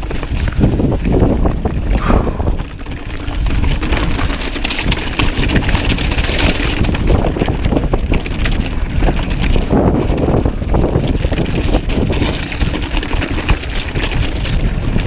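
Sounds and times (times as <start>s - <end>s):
mountain bike rattling: 0.0s - 15.0s
wind buffeting microphone: 0.0s - 15.0s.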